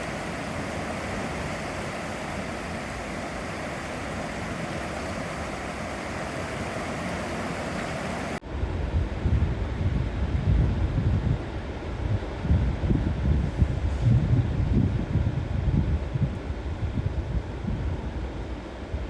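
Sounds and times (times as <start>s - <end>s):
floodwater rushing: 0.0s - 8.4s
wind buffeting microphone: 0.0s - 19.0s.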